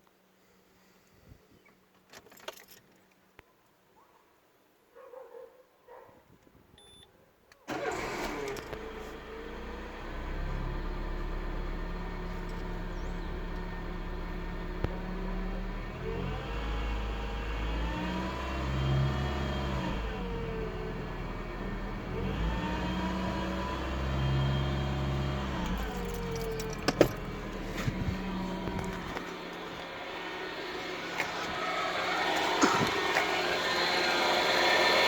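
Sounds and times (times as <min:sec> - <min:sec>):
car engine idling and revving: 0:07.7 - 0:35.0.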